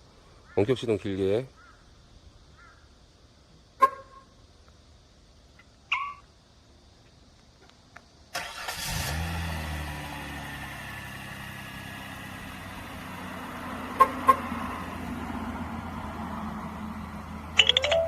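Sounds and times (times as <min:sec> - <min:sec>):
car engine starting and idling: 0:08.3 - 0:18.0.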